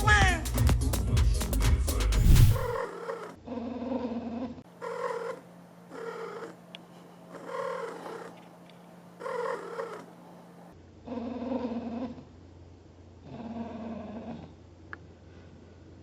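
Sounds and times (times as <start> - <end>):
animal short pitched calls: 9.2 - 10.2.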